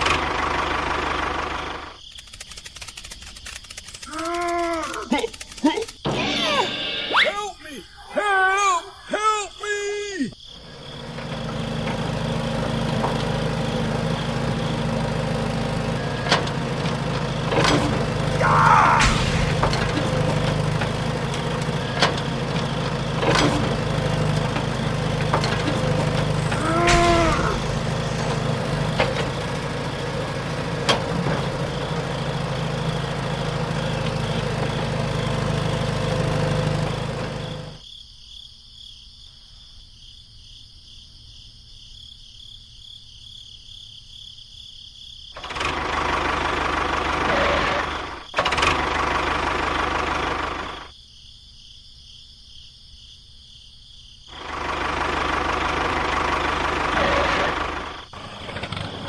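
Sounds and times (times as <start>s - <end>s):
small engine running: 0.0s - 6.9s, 10.6s - 37.8s, 45.4s - 50.9s, 54.3s - 59.0s.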